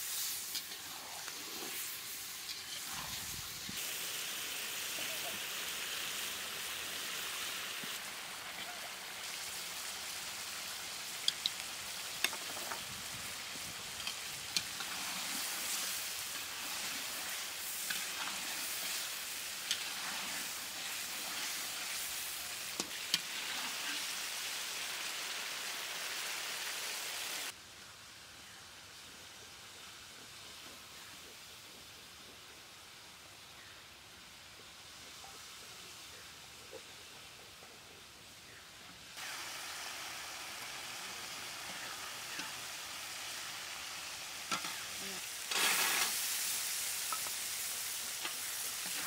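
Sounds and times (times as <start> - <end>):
fish sizzling in hot oil: 0.0 - 27.6, 39.2 - 49.0.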